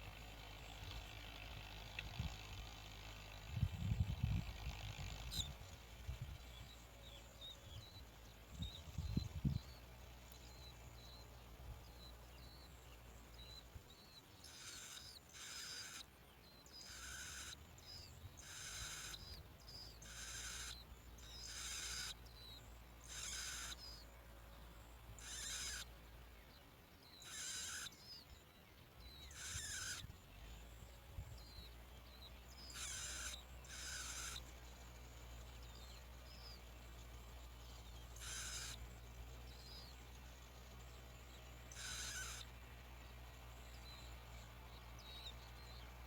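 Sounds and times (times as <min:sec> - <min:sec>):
low steady rumble: 0:00.0 - 0:27.1, 0:28.0 - 0:46.0
harsh hissing bird calls: 0:14.2 - 0:24.0, 0:25.2 - 0:25.9, 0:27.2 - 0:28.3, 0:29.2 - 0:30.1, 0:32.4 - 0:42.8.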